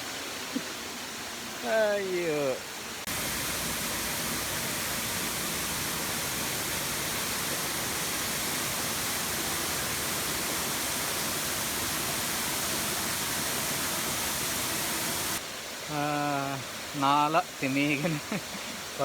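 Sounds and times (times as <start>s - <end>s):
waterfall rushing: 1.3s - 19.0s.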